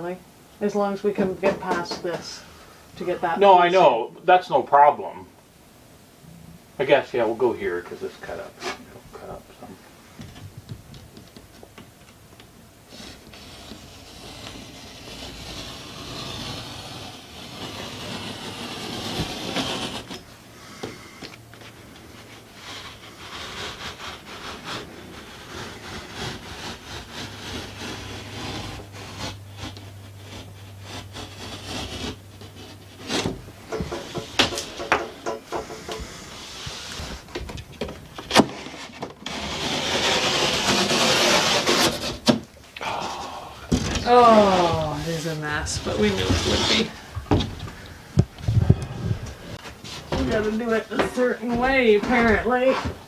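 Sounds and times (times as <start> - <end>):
drywall sawing and scraping: 0.7 - 4.0, 6.8 - 9.4, 12.8 - 42.5, 43.7 - 53.0
drywall cracking: 12.9 - 21.2, 21.8 - 53.0.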